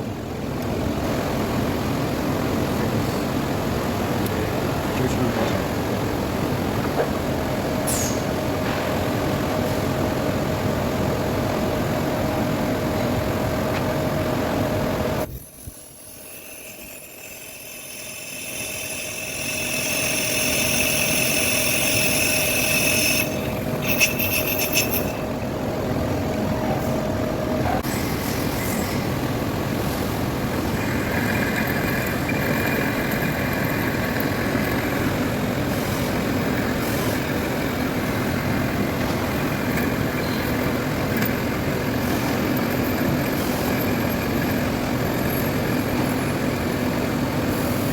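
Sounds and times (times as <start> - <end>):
metal lathe running: 14.2 - 27.6, 28.4 - 47.9
tool whining on metal: 15.2 - 25.5, 30.2 - 47.6.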